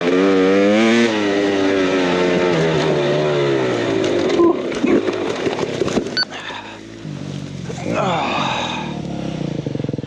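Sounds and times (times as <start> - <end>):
dirt bike engine running: 0.0 - 10.0
engine knocks and clatter: 2.4 - 8.0.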